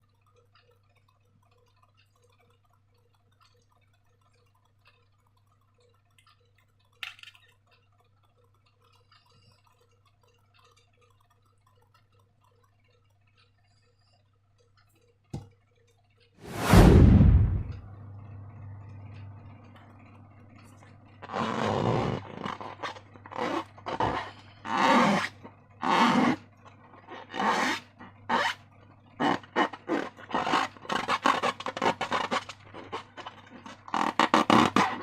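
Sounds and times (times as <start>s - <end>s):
small ticks and clicks: 0.0s - 16.4s.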